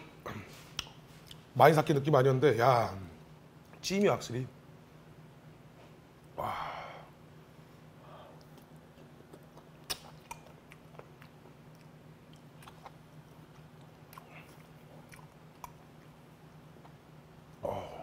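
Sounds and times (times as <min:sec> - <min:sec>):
low steady hum: 0:00.0 - 0:18.0
person chewing wetly: 0:08.4 - 0:17.6.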